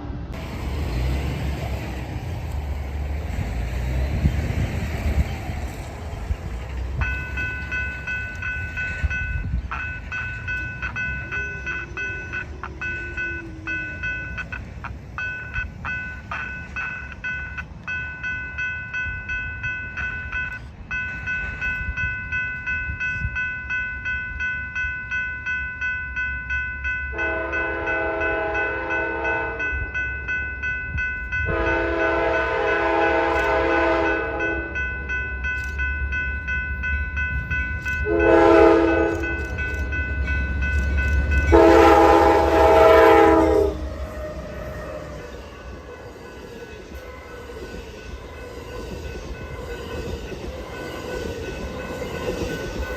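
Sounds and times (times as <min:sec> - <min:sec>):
train wheels clattering on rails: 0:00.0 - 0:25.2, 0:27.1 - 0:52.9
high-pitched ringing tone: 0:07.0 - 0:14.6
locomotive horn blasts: 0:27.1 - 0:29.9, 0:31.4 - 0:34.8, 0:38.0 - 0:39.4, 0:41.5 - 0:45.1.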